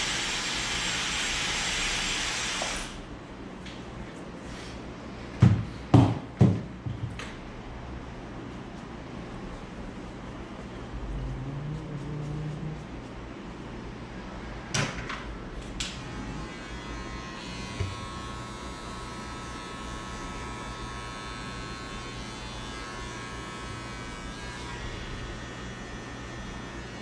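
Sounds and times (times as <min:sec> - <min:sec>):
electric hair trimmer whining: 0:00.0 - 0:03.0, 0:15.9 - 0:27.0.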